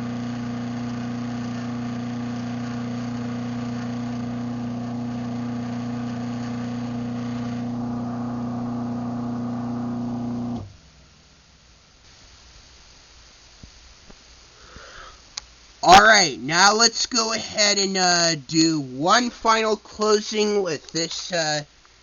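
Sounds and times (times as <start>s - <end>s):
garage door opener motor hum: 0.0s - 10.9s.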